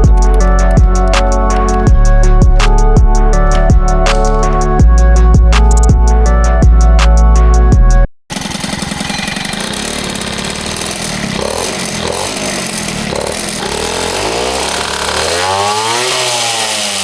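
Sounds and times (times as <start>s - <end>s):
moped engine revving: 8.3s - 17.0s.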